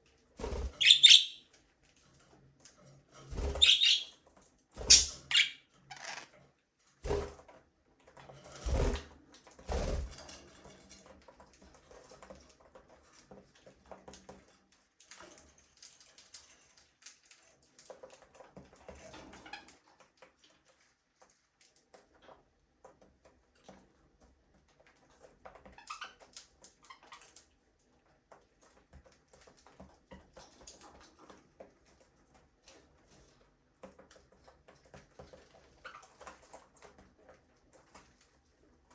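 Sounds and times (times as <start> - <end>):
beaks and feet tapping on perches: 0.6 - 1.4, 3.5 - 4.2, 4.8 - 6.3.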